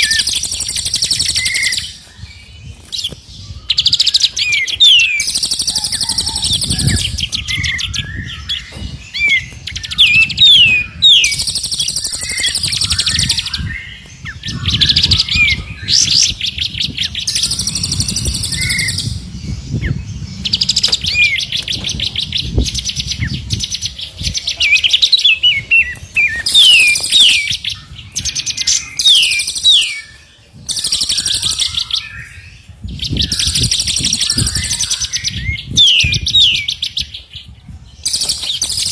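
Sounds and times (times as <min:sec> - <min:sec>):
songbirds chattering trills: 0:00.0 - 0:38.9
low rumble: 0:12.4 - 0:24.4.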